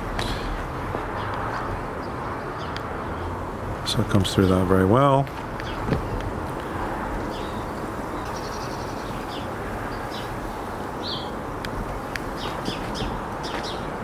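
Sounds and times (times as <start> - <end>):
wind rumble on microphone: 0.0 - 14.0
bird chirps: 7.2 - 11.4, 12.4 - 13.9.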